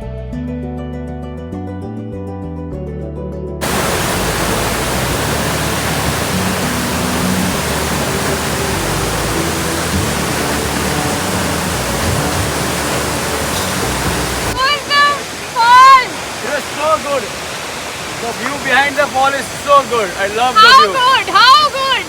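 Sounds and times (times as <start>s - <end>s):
acoustic guitar music: 3.6s - 16.0s
waterfall rushing: 3.6s - 22.0s.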